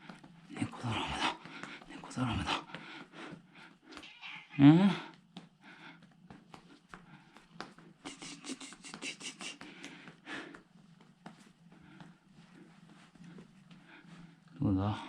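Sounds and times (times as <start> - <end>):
hand patting cat: 5.1 - 14.2.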